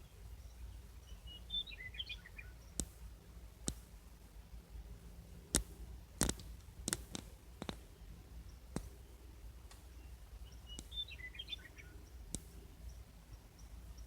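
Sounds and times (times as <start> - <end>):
short bird song: 0.0 - 6.2, 7.8 - 14.0
sharp clicks: 5.5 - 7.8, 12.3 - 12.6.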